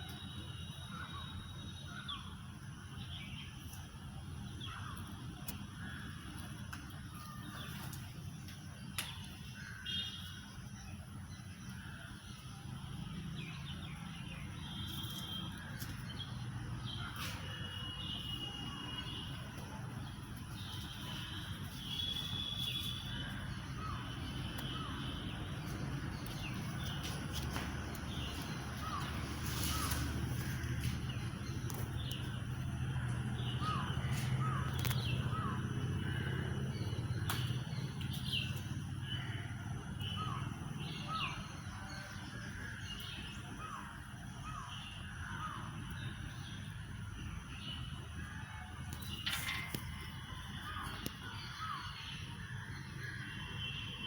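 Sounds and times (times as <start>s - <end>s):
bird chirps: 7.2s - 39.4s.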